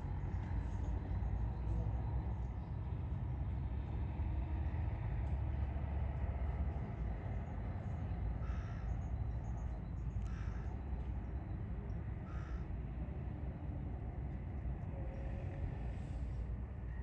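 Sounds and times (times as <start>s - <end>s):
steady low rumble: 0.0s - 17.0s
faint bird calls: 8.4s - 11.0s, 11.8s - 12.7s.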